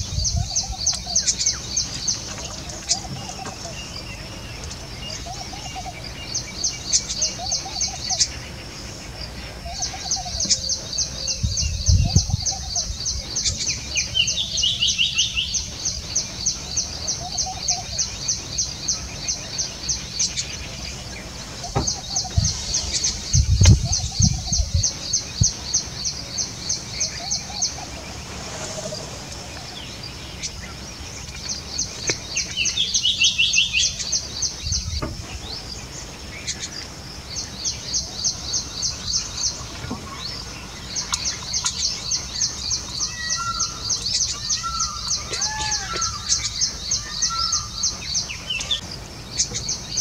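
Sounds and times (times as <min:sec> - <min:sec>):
lower bird call: 0:00.0 - 0:50.0
dull low thumps: 0:21.6 - 0:25.6.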